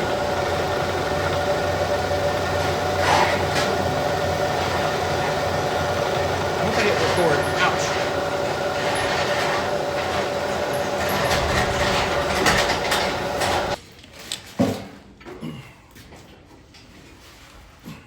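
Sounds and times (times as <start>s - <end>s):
milling machine cutting metal: 0.0s - 13.8s.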